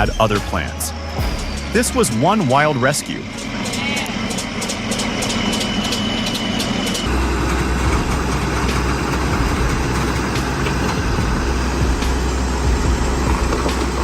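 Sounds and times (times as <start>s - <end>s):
heavy machine engine rumbling: 0.0s - 14.0s.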